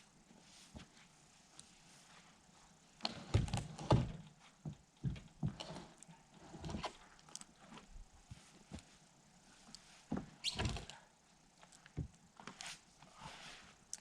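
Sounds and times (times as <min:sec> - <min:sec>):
irregular knocks and thumps: 0:03.2 - 0:05.8.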